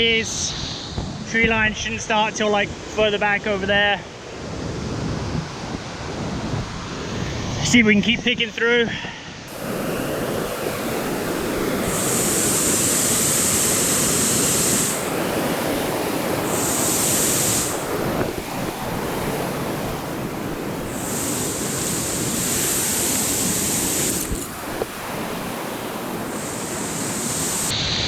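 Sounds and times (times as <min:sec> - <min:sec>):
whitewater rushing: 0:09.5 - 0:27.7
high-pitched buzz: 0:09.5 - 0:27.8.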